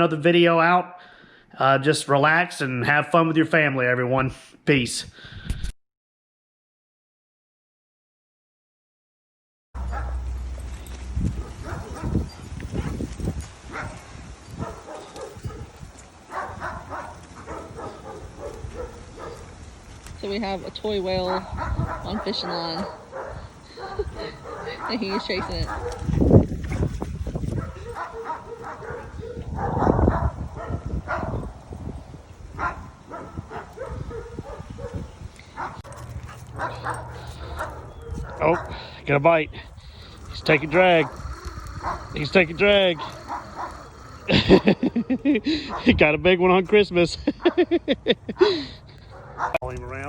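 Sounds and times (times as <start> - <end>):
dog vocal sounds: 14.6 - 19.5, 21.3 - 31.4, 32.6 - 46.0.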